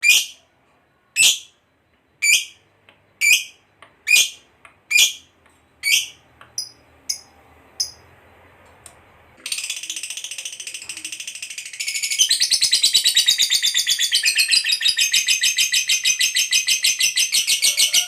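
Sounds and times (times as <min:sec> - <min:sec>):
lovebird chirps: 0:01.2 - 0:01.6, 0:02.2 - 0:02.6, 0:03.2 - 0:08.1, 0:09.4 - 0:18.0.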